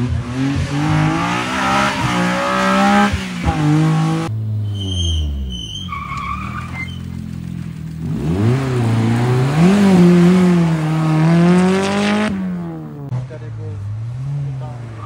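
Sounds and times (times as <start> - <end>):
rally car engine revving: 0.0 - 15.0
tyre skid noise: 0.6 - 12.6
tyre squeal: 1.4 - 3.0, 4.6 - 7.2.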